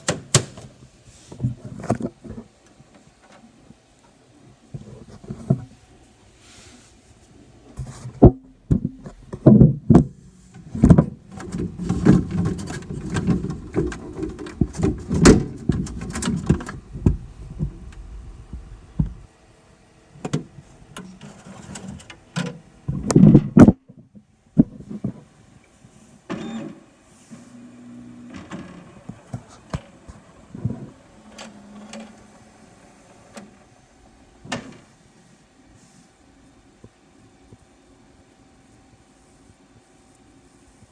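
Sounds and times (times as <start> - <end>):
clicks and knocks of plastic parts: 8.2 - 17.2
small electric motors running: 27.5 - 34.4.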